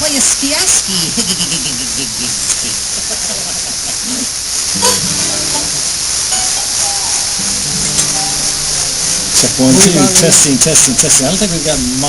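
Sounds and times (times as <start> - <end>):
steady hiss: 0.0 - 12.0
instrument held notes: 4.7 - 11.6.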